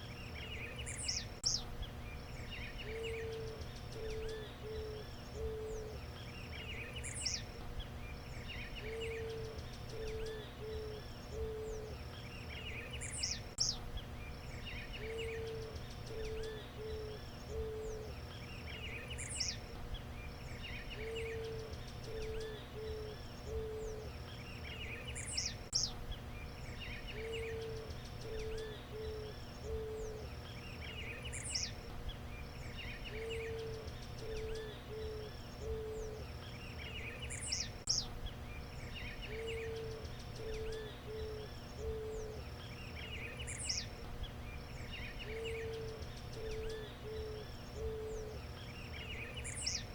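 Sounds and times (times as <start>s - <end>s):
birds chirping: 0.0s - 49.9s
steady background hum: 0.0s - 49.9s
dove cooing: 2.9s - 6.1s, 8.8s - 12.1s, 15.0s - 18.2s, 20.9s - 24.2s, 27.1s - 31.0s, 33.1s - 36.4s, 39.2s - 42.6s, 45.2s - 49.9s.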